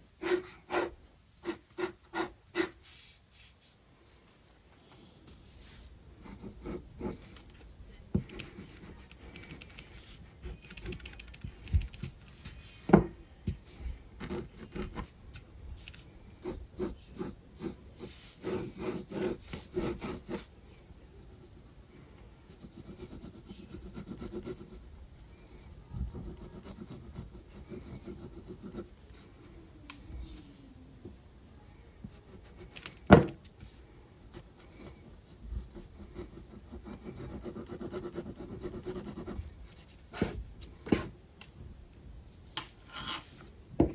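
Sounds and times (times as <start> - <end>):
pencil scratching on paper: 0.2 - 3.1, 5.6 - 7.4, 8.2 - 11.1, 13.5 - 15.2, 16.4 - 20.5, 21.1 - 29.4, 31.6 - 32.8, 34.2 - 41.1.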